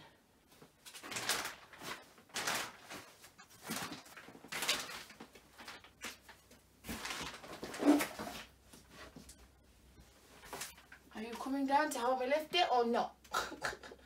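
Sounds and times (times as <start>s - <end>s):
plastic-wrapped mattress rustling: 0.7s - 9.3s.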